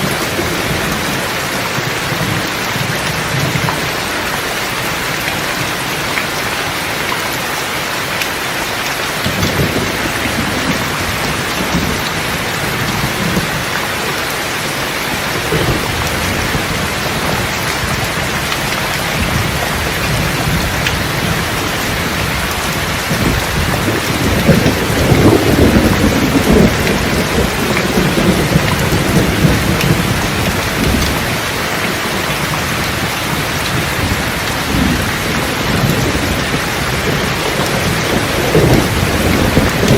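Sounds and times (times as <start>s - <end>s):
heavy rain: 0.0s - 39.9s
rolling thunder: 9.2s - 13.8s, 14.5s - 39.9s.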